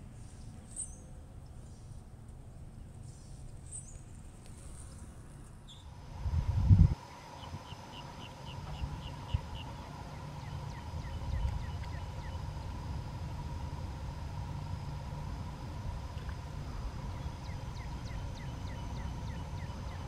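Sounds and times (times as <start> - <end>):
faint hum: 0.0 - 20.0
small bird chirping: 5.6 - 5.9.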